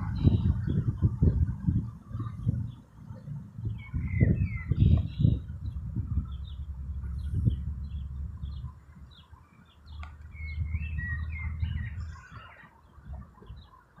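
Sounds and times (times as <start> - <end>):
low rumble: 0.0 - 9.2
bird warbling song: 0.0 - 14.0
birds chirping: 0.0 - 14.0.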